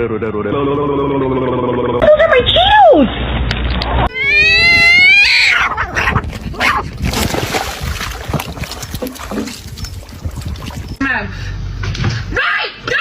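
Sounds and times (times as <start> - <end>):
animal crying: 4.1 - 6.8.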